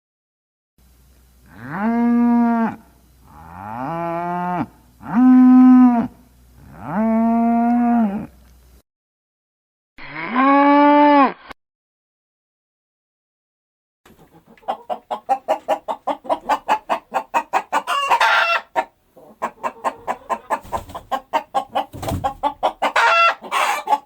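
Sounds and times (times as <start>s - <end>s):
cow mooing: 1.5s - 8.3s.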